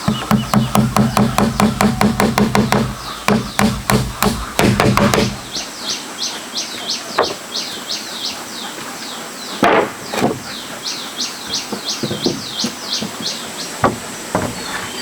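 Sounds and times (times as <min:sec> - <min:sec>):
sharp knocks: 0:00.0 - 0:05.6, 0:11.7 - 0:14.7
bird chirping: 0:00.0 - 0:15.0.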